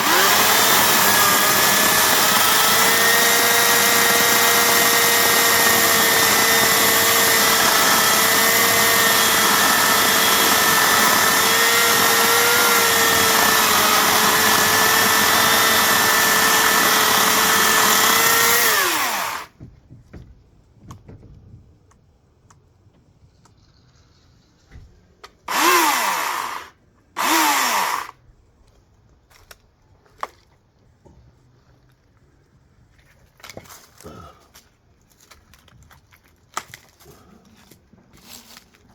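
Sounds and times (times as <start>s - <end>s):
electric chainsaw motor running: 0.0s - 19.6s, 25.5s - 28.2s.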